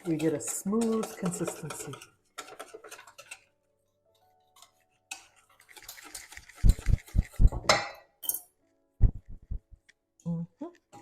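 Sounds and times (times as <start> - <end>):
whisk beating sauce in bowl: 0.0 - 3.5, 5.2 - 7.7.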